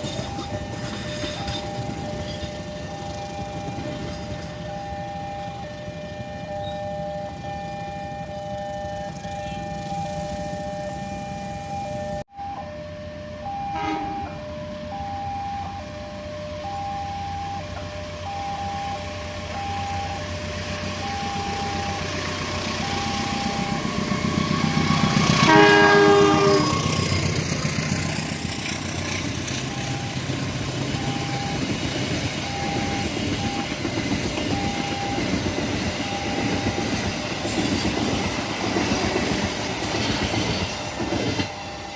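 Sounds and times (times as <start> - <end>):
train rumble: 0.0 - 12.7, 17.5 - 41.9
crossing alarm pulsing tone: 0.0 - 41.9
train horn: 13.6 - 14.5, 24.4 - 27.2.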